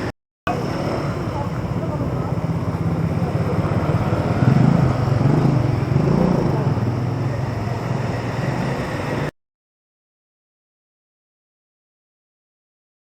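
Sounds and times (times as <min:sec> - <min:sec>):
street ambience: 0:00.0 - 0:09.4
vehicle engine running: 0:00.5 - 0:09.3.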